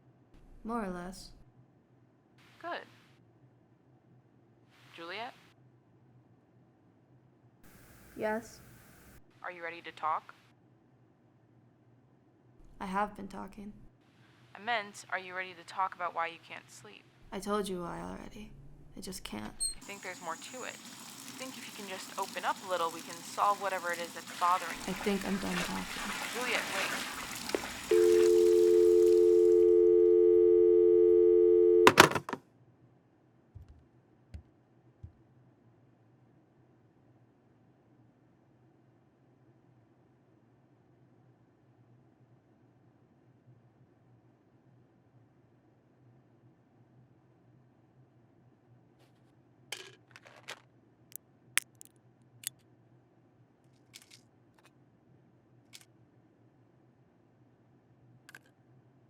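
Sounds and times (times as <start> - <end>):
telephone dial tone: 27.9 - 32.2
sharp clicks: 51.6 - 51.9.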